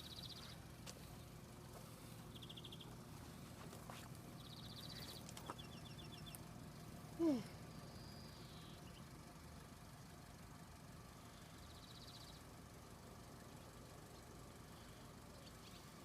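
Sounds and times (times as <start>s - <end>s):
bird trill: 0.0s - 0.6s, 2.3s - 2.9s, 4.4s - 6.5s, 11.3s - 12.5s
faint bird chirps: 0.0s - 1.4s, 2.0s - 3.0s, 4.3s - 6.5s, 7.2s - 9.1s, 11.2s - 12.5s, 13.6s - 16.0s
low steady rumble: 0.0s - 16.0s.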